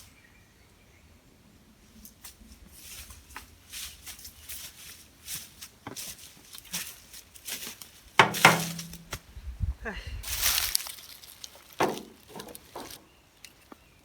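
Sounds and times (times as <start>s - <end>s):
footsteps crunching through dry leaves: 2.2s - 9.3s, 10.2s - 14.0s
rustling clatter: 7.6s - 9.2s, 10.6s - 13.1s.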